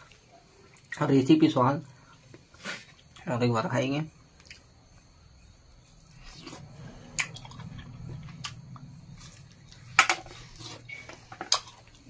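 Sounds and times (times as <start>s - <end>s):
person chewing food: 5.7s - 12.0s.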